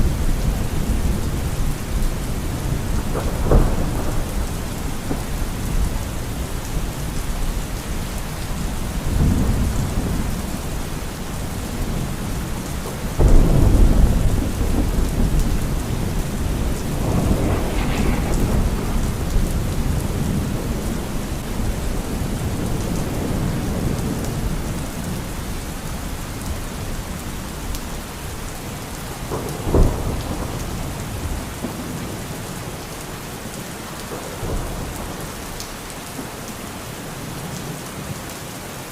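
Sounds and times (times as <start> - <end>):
thunder rumbling: 0.0 - 28.4, 29.0 - 32.8
heavy rain: 0.0 - 38.9
thunder crack: 2.6 - 6.5, 13.1 - 24.0.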